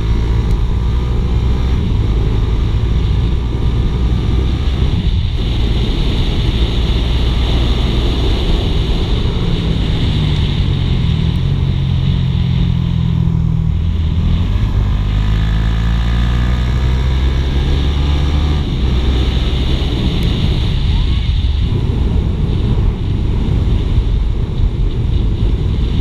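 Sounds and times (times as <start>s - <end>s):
motorcycle engine running: 0.0s - 26.0s
road and wind noise: 0.0s - 26.0s.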